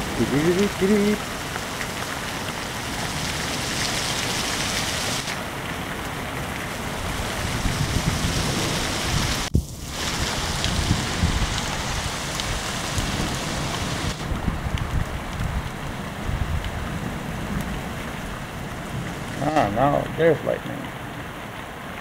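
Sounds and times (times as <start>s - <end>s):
heavy rain: 0.0s - 22.0s
wind buffeting microphone: 6.8s - 20.2s.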